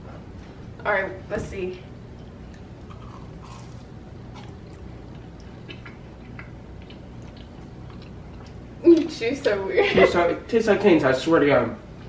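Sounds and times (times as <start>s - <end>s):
steady low hum: 0.0s - 12.0s
faint biting and chewing: 2.1s - 8.6s.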